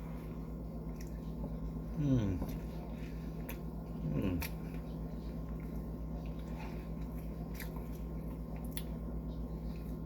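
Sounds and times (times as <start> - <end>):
person chewing food: 0.0 - 10.0
steady low hum: 0.0 - 10.0.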